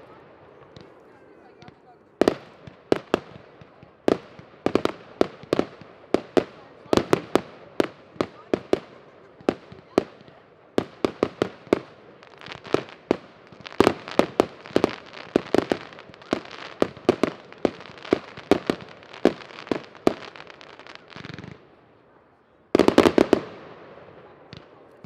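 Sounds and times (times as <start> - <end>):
fireworks banging: 1.6 - 21.7, 22.8 - 25.0.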